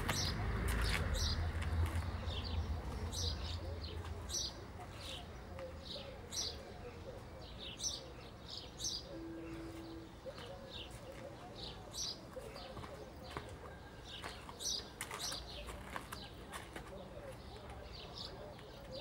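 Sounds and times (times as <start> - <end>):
small birds chirping: 0.0 - 19.0
brief steady tone: 9.1 - 10.2.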